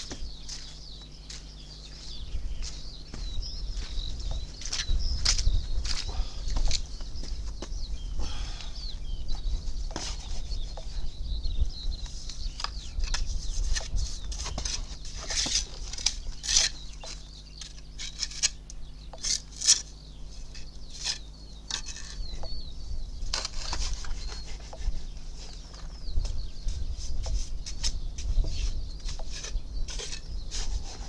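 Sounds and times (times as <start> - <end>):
trowel scraping on stone: 28.6 - 31.0.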